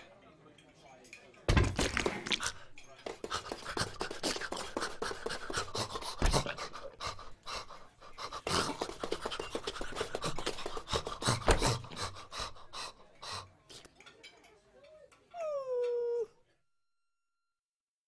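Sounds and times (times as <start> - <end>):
cartoon cat panting: 3.4 - 13.4.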